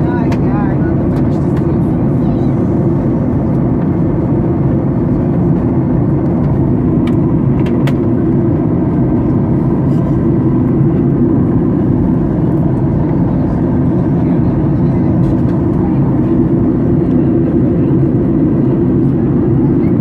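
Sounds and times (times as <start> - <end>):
airliner cabin rumble: 0.0 - 20.0.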